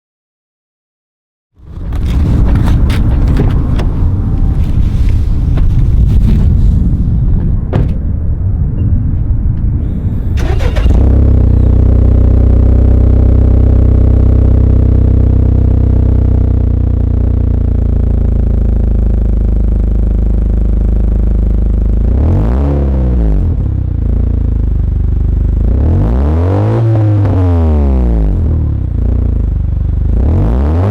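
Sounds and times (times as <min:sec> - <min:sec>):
car exhaust idling: 0:09.7 - 0:22.1, 0:23.4 - 0:26.0, 0:27.3 - 0:30.3
engine revving: 0:09.8 - 0:30.9.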